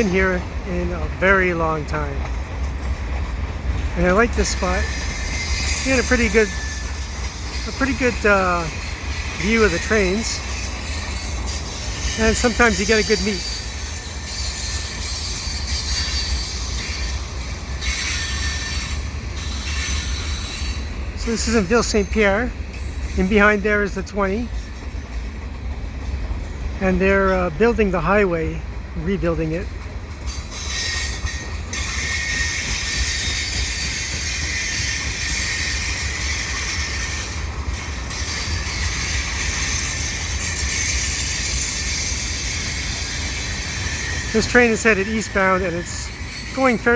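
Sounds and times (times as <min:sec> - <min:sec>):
freight train wheels rumbling: 0:00.0 - 0:46.9
faint high wheel squeal: 0:04.1 - 0:23.5, 0:30.3 - 0:46.9.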